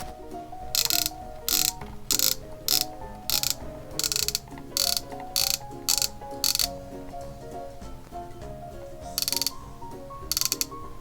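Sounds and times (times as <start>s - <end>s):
background music: 0.0s - 11.0s
winch ratcheting clicks: 0.8s - 6.8s, 9.2s - 9.6s, 10.3s - 10.8s.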